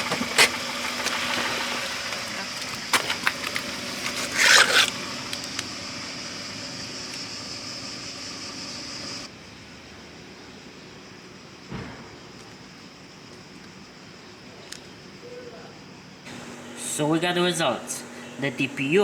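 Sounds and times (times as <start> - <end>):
car engine running: 0.0 - 9.3, 16.3 - 19.0
tyres rolling: 0.0 - 9.3, 16.3 - 19.0.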